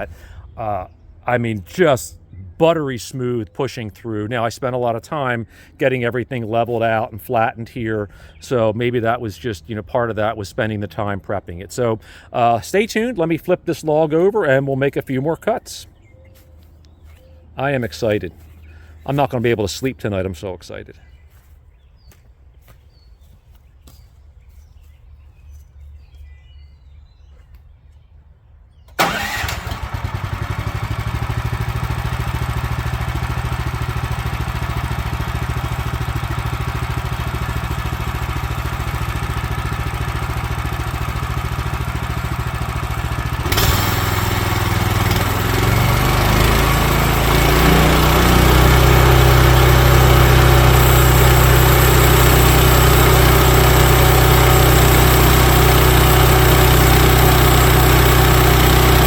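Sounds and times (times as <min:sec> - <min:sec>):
sawmill engine idling and revving: 0:29.0 - 0:59.0.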